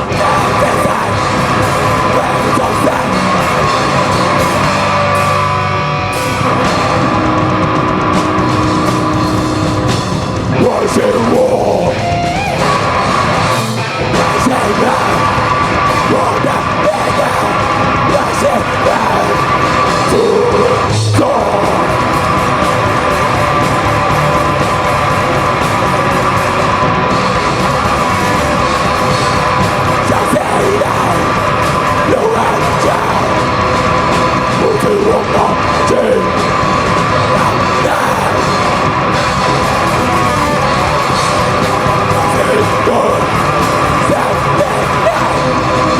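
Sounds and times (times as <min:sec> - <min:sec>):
distorted guitars: 0:00.0 - 0:45.9
drums: 0:00.0 - 0:45.9
yelled vocals: 0:00.0 - 0:45.9.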